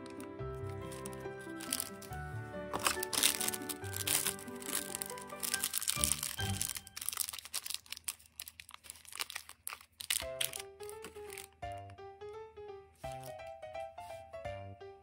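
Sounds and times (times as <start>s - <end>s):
background music: 0.0s - 7.3s, 10.2s - 15.0s
plastic packet crinkling: 0.0s - 11.6s, 13.0s - 13.4s.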